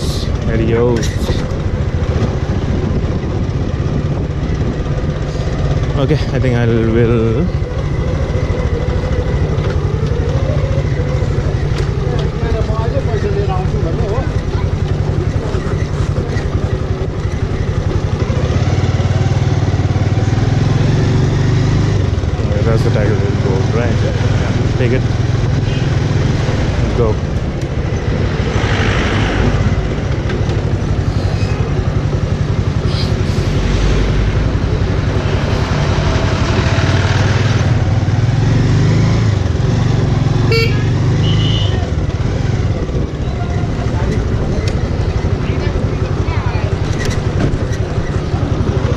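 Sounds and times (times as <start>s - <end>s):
motorcycle engine running: 0.0s - 48.9s
rushing noise: 30.8s - 37.9s
horn beep: 40.4s - 41.9s.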